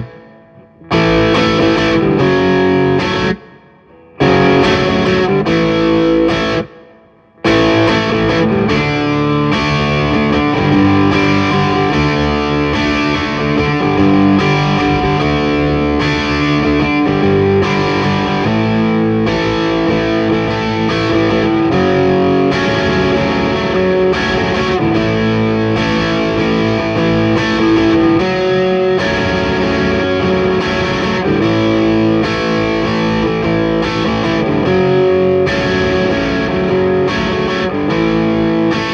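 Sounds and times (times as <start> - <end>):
distorted electric guitar: 0.0 - 38.9.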